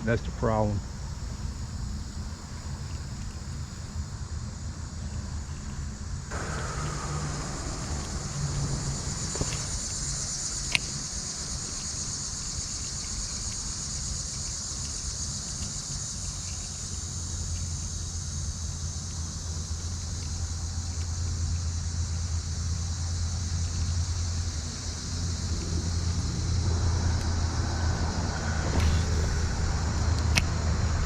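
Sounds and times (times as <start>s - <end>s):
high-pitched insect chorus: 0.0s - 31.0s
low rumble: 6.3s - 12.1s, 22.0s - 31.0s.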